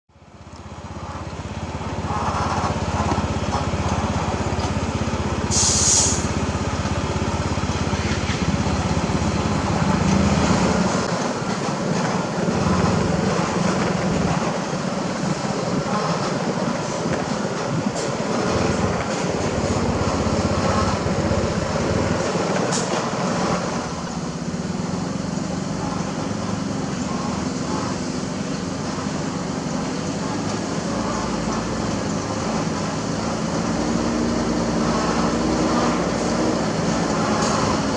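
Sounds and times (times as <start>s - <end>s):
heavy diesel engine running: 0.1s - 37.9s
short hiss: 5.5s - 6.4s.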